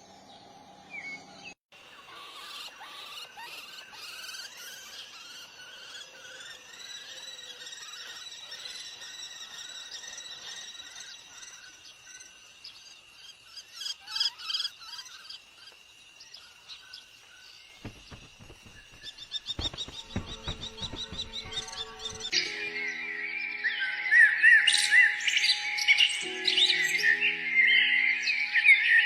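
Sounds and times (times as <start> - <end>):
small bird chirping: 0.3 - 22.4.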